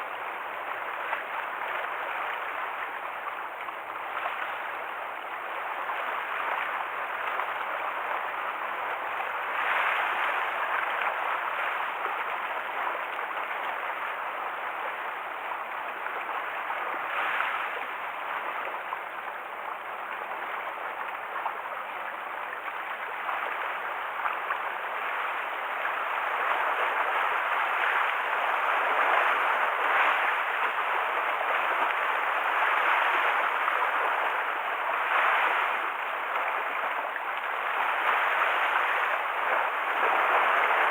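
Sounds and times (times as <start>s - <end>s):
waves splashing against shore: 24.2s - 40.9s.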